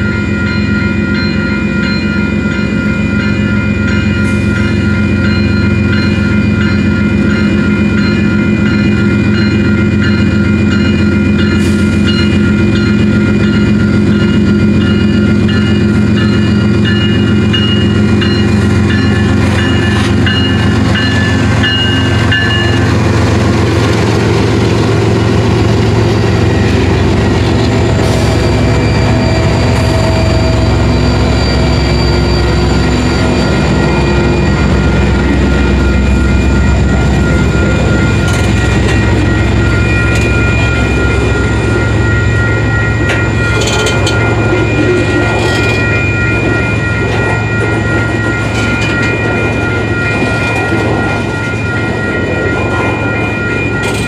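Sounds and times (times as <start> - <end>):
diesel locomotive engine drone: 0.0 - 54.0
steady high tones: 0.0 - 54.0.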